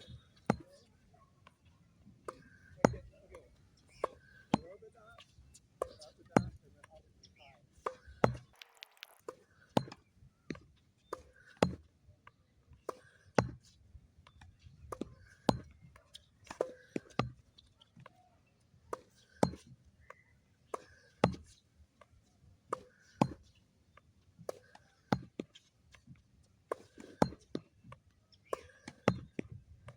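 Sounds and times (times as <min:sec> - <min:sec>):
ball bounces: 0:08.3 - 0:09.3.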